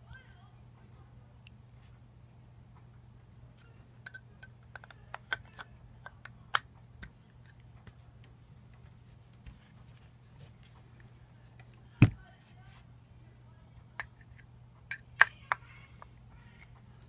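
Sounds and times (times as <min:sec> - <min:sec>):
faint low hum: 0:00.0 - 0:17.0
small plastic clicks and taps: 0:04.0 - 0:08.8.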